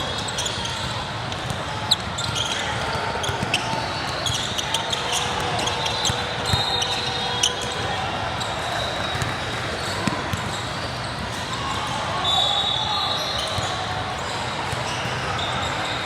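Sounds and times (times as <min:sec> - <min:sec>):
crowd voices: 0:00.0 - 0:16.0
basketball bouncing on court: 0:03.2 - 0:07.8, 0:09.0 - 0:11.3.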